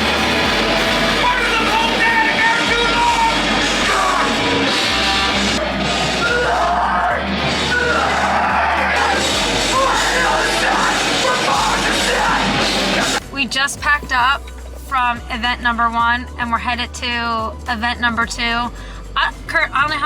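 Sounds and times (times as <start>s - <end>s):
yelled vocals: 0.0s - 13.2s
heavy rock music: 0.0s - 20.0s.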